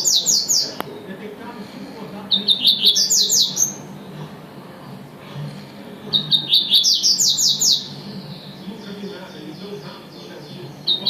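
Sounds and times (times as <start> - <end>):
bird singing high notes: 2.3 - 4.2, 6.0 - 11.0.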